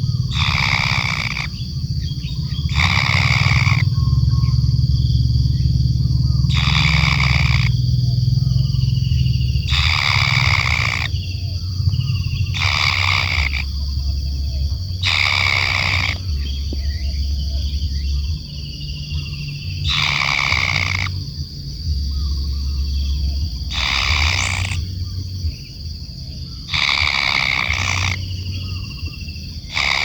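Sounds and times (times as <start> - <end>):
kingfisher harsh grating calls: 0.0 - 4.1, 6.4 - 7.8, 8.6 - 16.8, 19.5 - 21.3, 23.6 - 25.0, 26.6 - 30.0
high-pitched whine: 0.0 - 30.0.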